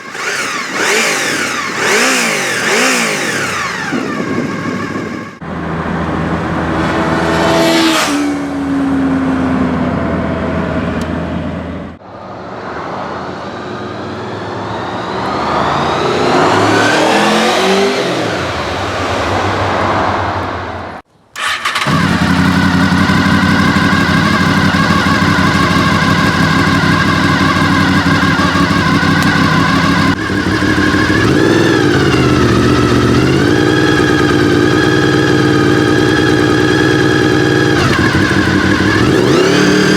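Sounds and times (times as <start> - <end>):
motorcycle engine revving and idling: 0.0 - 12.0, 21.4 - 39.9.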